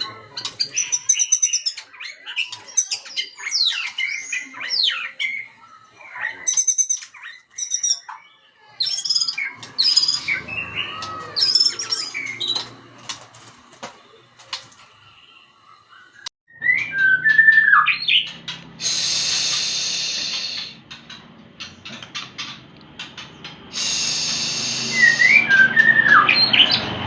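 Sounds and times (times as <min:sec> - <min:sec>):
bird singing whistled song: 0:00.7 - 0:05.5, 0:08.8 - 0:12.6, 0:16.0 - 0:20.8, 0:23.8 - 0:26.8.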